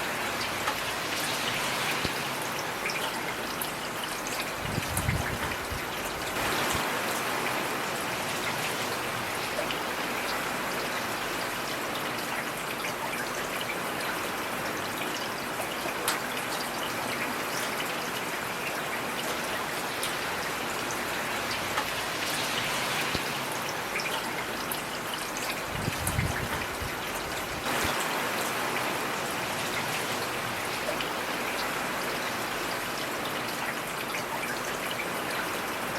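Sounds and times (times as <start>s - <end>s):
heavy rain falling: 0.0s - 35.9s.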